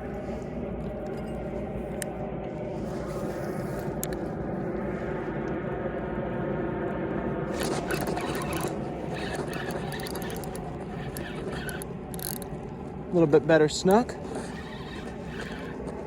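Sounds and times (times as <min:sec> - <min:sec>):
engine drone: 0:00.0 - 0:16.0
high-pitched rattling clicks: 0:07.6 - 0:12.5.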